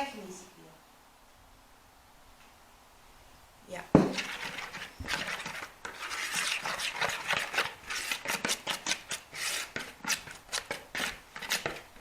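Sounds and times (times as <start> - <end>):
utensil scraping a bowl: 4.0 - 12.0.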